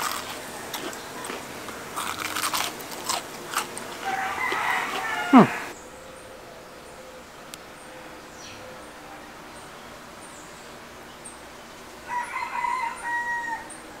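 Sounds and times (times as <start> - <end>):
crunching fried chicken: 0.0 - 5.7.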